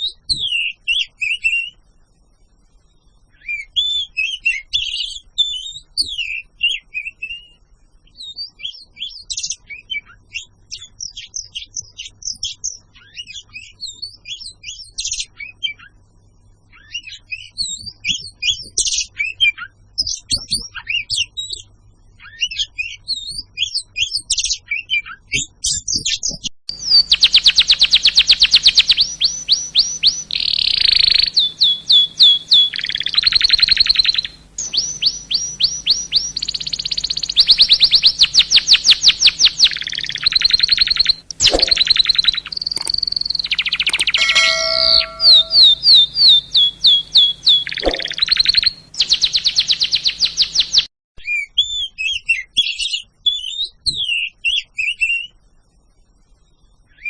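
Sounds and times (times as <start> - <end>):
bird whistling high notes: 26.7 - 50.8
songbird chirping and trilling: 26.7 - 55.3.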